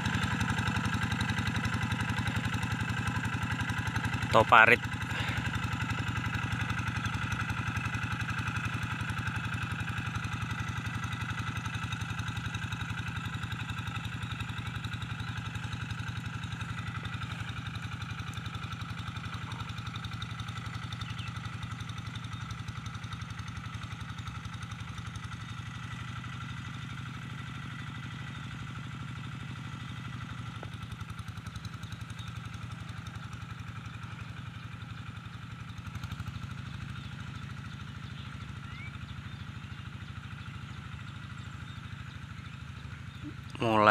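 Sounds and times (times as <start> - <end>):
diesel tractor engine pulsing: 0.0 - 25.8.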